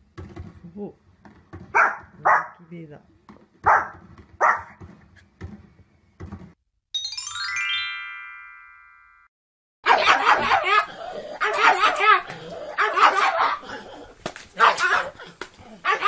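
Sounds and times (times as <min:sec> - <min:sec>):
dog barking rapidly: 0:01.7 - 0:02.6, 0:03.6 - 0:04.8, 0:09.8 - 0:13.6, 0:14.6 - 0:15.2, 0:15.8 - 0:16.0
small dog barking: 0:01.8 - 0:02.6, 0:03.6 - 0:04.8, 0:09.8 - 0:13.6, 0:14.6 - 0:15.2
falling chime notes: 0:07.0 - 0:09.3.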